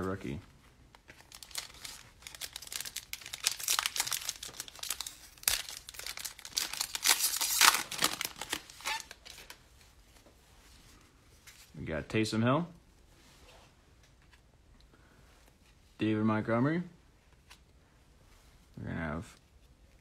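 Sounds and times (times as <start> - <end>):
foil wrapper crinkling and tearing: 1.2 - 9.6.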